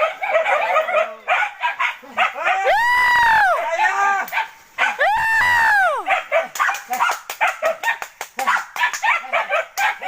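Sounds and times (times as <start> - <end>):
dogs yipping barks: 0.0 - 2.7, 4.3 - 5.0, 6.0 - 10.0.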